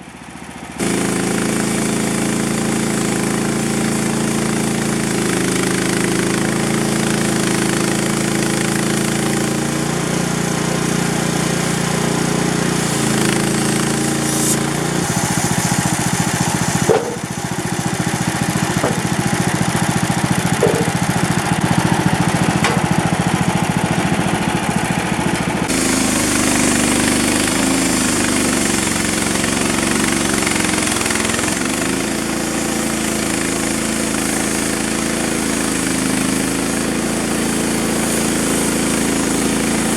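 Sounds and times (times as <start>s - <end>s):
engine running loudly: 0.0s - 39.9s
brief knock: 16.9s - 17.3s, 18.8s - 19.3s, 20.6s - 21.0s, 22.6s - 23.0s.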